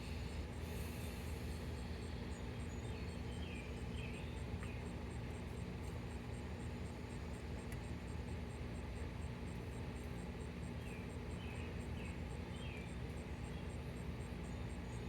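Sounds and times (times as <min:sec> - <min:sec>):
faint bird chirps: 0:00.3 - 0:05.3, 0:10.4 - 0:15.0.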